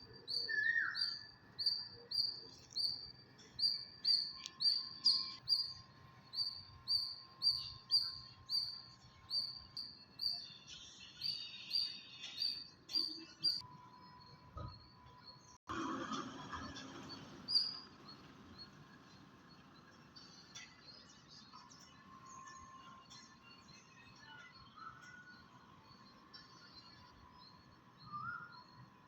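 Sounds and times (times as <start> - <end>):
bird chirping high: 0.1 - 3.0.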